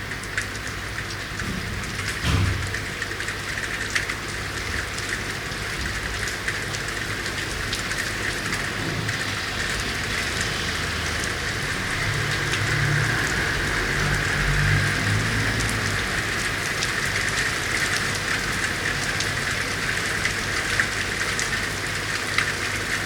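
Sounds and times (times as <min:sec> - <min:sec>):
rain on street: 0:00.0 - 0:23.0.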